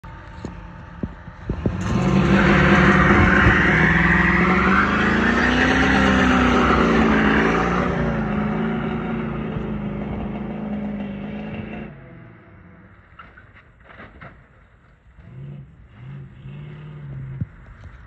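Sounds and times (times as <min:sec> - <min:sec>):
car engine revving high: 0:01.4 - 0:12.5, 0:15.2 - 0:17.5
tyres spinning and squealing: 0:01.5 - 0:11.8.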